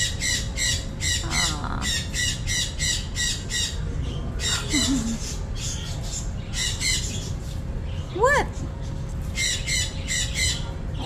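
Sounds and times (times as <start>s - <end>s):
parrot squawking: 0.0s - 3.8s.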